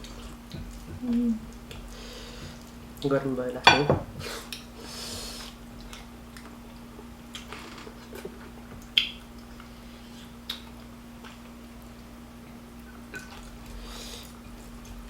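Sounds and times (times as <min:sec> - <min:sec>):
person chewing: 0:08.9 - 0:11.4.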